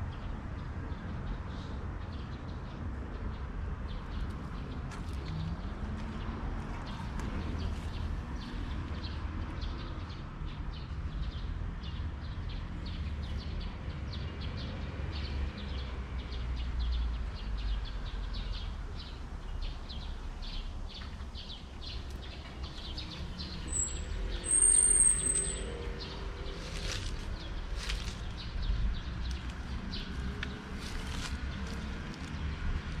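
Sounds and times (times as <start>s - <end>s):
distant traffic rumble: 0.0s - 33.0s
bird chirps: 21.5s - 26.2s
high whistled bird call: 23.7s - 25.7s.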